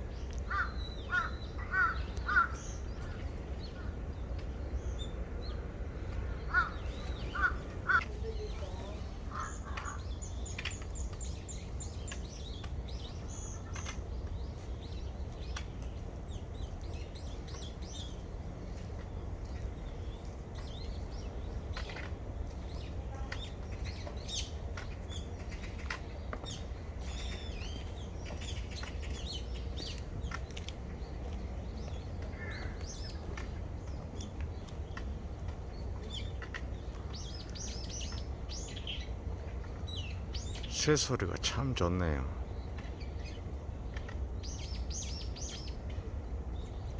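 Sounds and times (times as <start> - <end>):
songbirds chirping and singing: 0.0 - 18.3, 35.8 - 43.4.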